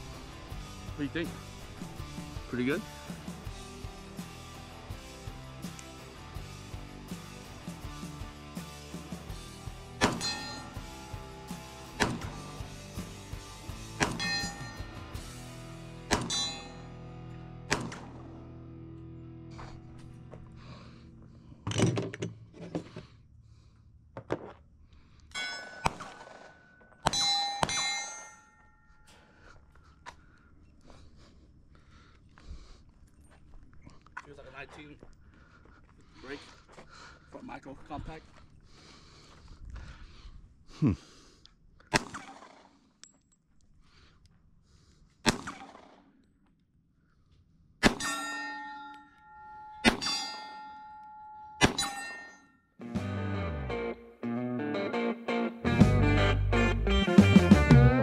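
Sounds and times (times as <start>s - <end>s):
pistol shots: 10.0s - 10.6s, 12.0s - 12.6s, 16.1s - 16.6s, 17.7s - 18.4s, 41.9s - 42.7s, 45.2s - 46.1s, 47.8s - 48.1s, 51.6s - 52.0s
ringing metallic clang: 10.0s - 11.2s, 14.0s - 15.0s, 16.1s - 17.0s, 25.4s - 29.2s, 47.9s - 52.6s.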